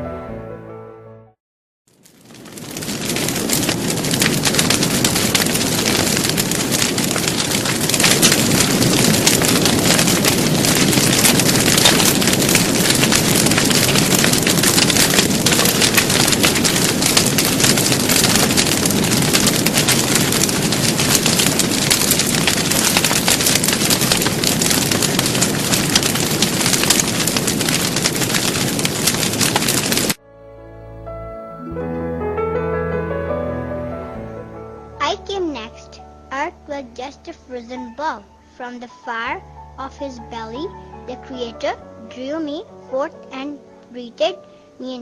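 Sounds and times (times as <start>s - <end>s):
big fire crackling and roaring: 1.9s - 30.2s.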